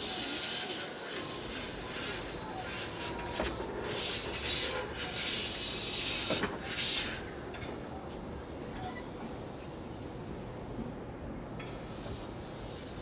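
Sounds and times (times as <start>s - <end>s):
air brakes hissing: 11.7s - 13.0s.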